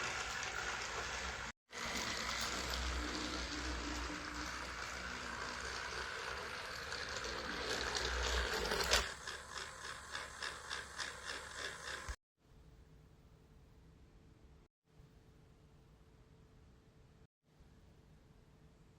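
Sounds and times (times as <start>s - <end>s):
toy train gearbox whirring: 0.0s - 12.2s.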